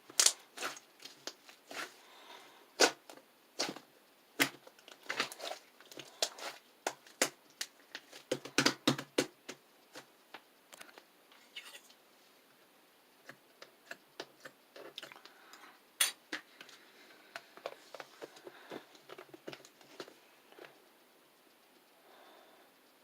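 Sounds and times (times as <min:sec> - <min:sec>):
ice slime crackling: 0:00.1 - 0:02.1, 0:04.4 - 0:08.1.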